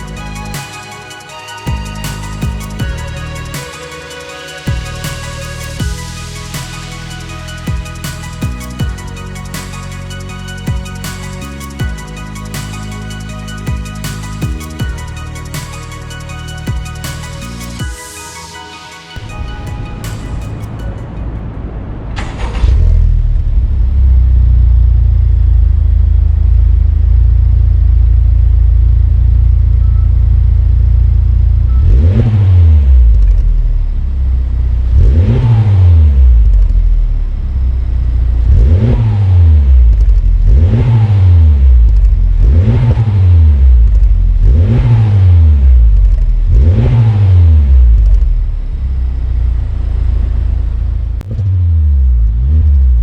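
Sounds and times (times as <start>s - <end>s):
car exhaust idling and revving: 21.1s - 53.0s.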